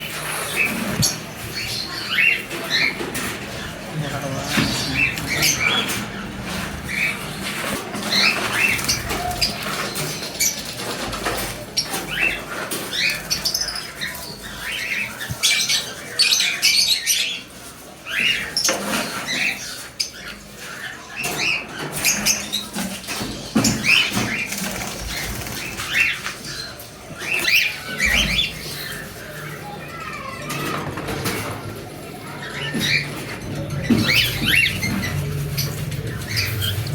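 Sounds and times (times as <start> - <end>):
budgerigars chirping: 32.4 - 36.9.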